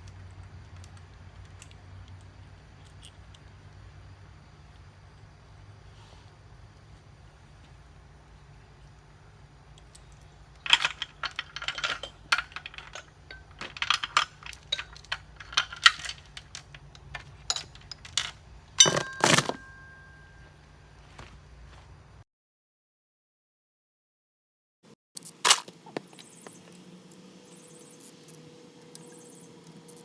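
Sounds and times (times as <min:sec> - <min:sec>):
metal tools clinking: 0:09.7 - 0:20.6, 0:25.2 - 0:30.0.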